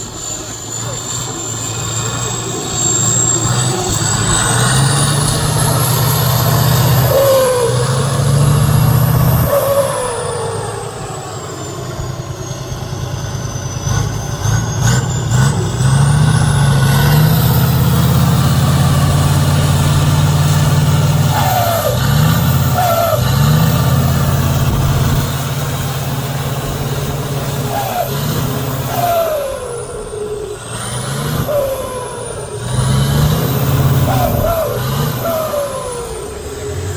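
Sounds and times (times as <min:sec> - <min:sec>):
short falling whines: 0:00.0 - 0:36.9
truck diesel engine revving: 0:00.0 - 0:36.9.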